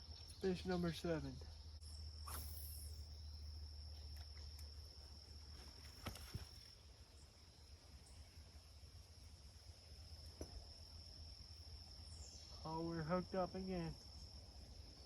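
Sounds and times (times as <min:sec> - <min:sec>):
high-pitched insect drone: 0:00.1 - 0:04.8.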